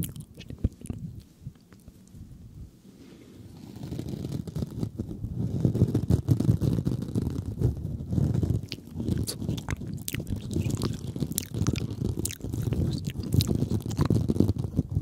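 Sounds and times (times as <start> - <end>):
low rustle: 0.6 - 15.0
wet clicks and crackles: 8.6 - 14.9.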